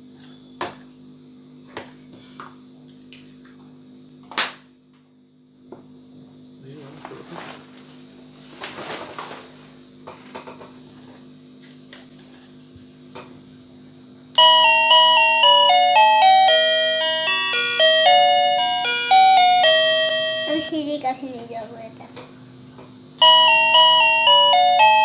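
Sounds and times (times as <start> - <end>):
steady hum: 10.6 - 25.0
electronic doorbell chime melody: 14.4 - 20.9, 23.2 - 25.0.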